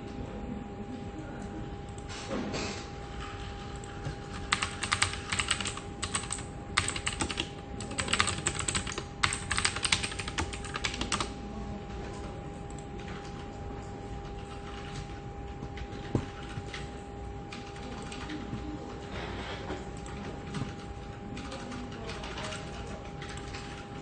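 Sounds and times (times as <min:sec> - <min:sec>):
computer keyboard typing: 0:03.0 - 0:11.4, 0:14.2 - 0:19.1, 0:19.9 - 0:24.0.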